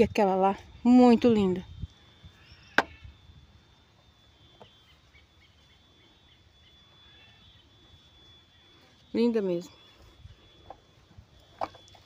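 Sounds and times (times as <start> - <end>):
faint steady high whine: 0.0 - 12.0
distant bird calls: 1.7 - 12.0.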